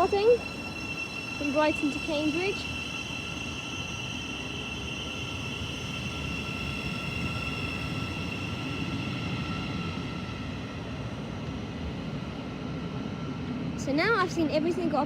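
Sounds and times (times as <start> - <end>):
electric train whine: 0.0 - 15.0
low train rumble: 0.0 - 15.0.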